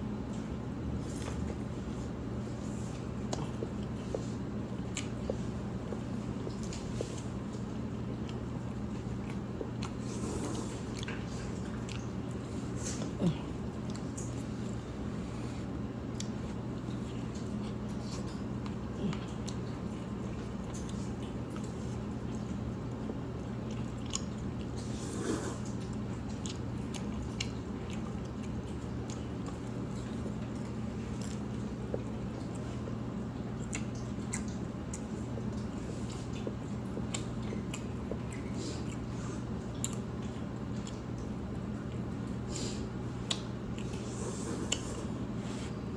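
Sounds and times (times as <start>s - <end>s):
steady low hum: 0.0s - 45.9s
chewing noodles: 0.2s - 45.9s
wet clicks and smacks: 39.6s - 42.4s, 43.2s - 44.0s
wet mouth clicks and smacks: 43.2s - 44.0s.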